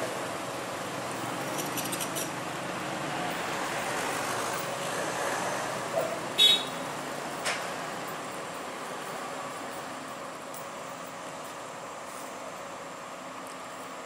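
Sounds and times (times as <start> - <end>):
vehicle engine and traffic noise: 0.0 - 14.0.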